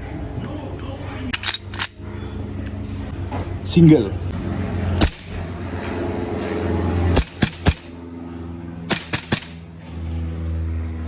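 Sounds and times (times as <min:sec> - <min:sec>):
airsoft pistol shots: 0:05.0 - 0:05.4, 0:07.2 - 0:08.0, 0:08.9 - 0:09.6.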